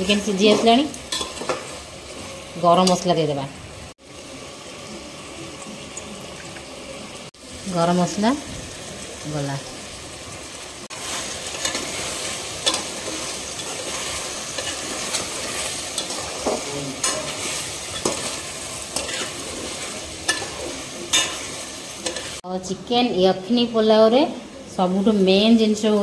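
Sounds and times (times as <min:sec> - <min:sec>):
food sizzling in oil: 0:00.0 - 0:26.0
metal spatula scraping pot: 0:11.0 - 0:22.4.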